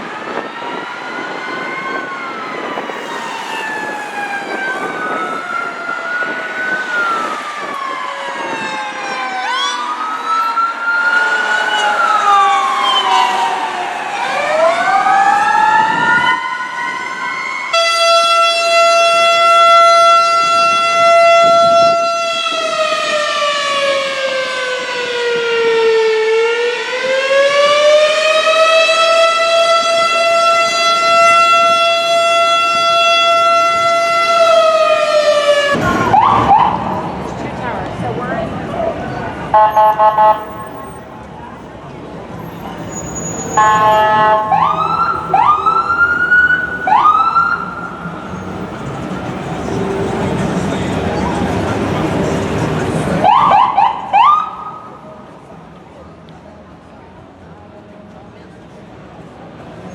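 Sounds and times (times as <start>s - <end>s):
steady siren tone: 0.0s - 37.2s, 43.4s - 50.2s
wailing sirens: 0.0s - 41.6s, 42.3s - 55.4s.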